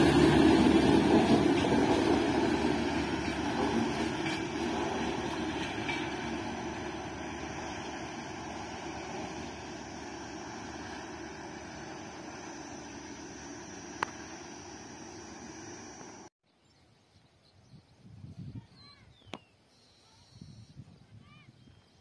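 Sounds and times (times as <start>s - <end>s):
low rumbling: 0.0s - 16.3s
train rumbling past: 0.0s - 16.3s.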